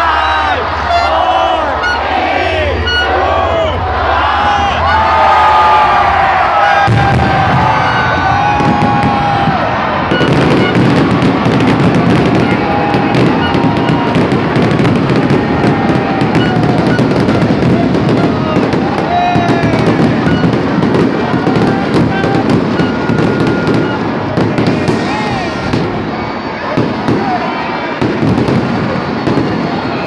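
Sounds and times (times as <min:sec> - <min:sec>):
music playing: 0:00.1 - 0:06.4
fireworks bangs and crackling: 0:05.1 - 0:30.0.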